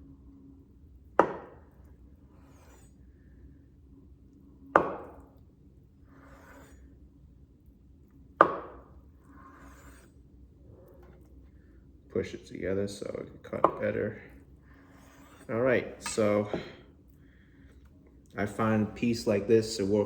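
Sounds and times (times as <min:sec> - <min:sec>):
knife chopping on cutting board: 0:01.2 - 0:01.7, 0:04.8 - 0:05.2, 0:08.4 - 0:10.0, 0:14.9 - 0:16.8.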